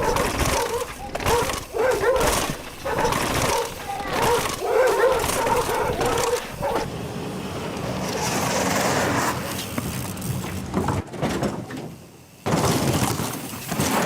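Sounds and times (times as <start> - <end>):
animal whining: 0.0 - 6.9.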